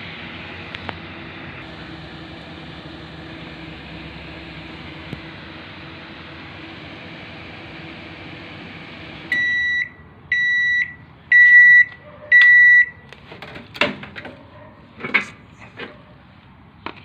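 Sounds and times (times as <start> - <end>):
microwave oven humming: 0.0 - 10.7.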